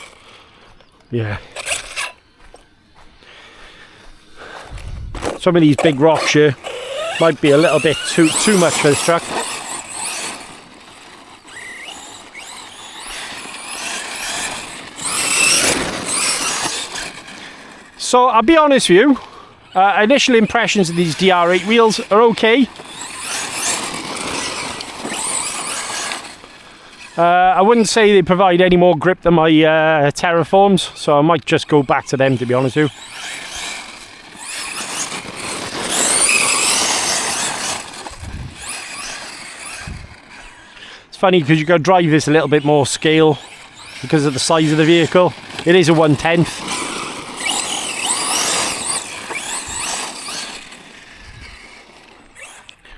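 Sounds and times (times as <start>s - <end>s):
toy truck electric motor whining: 0.0s - 52.9s
tyres rushing on rough ground: 0.0s - 52.9s.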